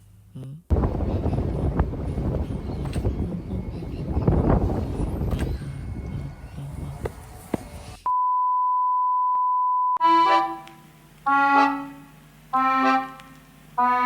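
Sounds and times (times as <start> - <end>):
accordion music playing chords: 10.0 - 14.0.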